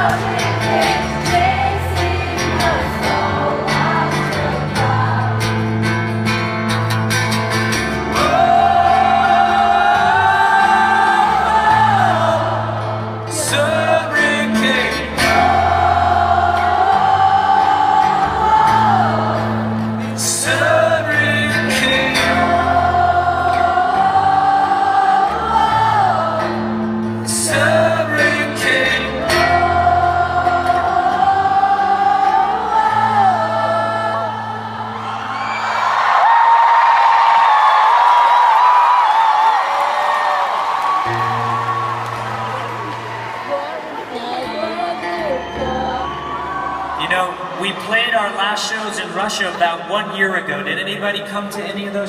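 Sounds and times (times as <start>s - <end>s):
live rock band playing: 0.0s - 9.3s
wordless sung melody: 0.0s - 35.8s.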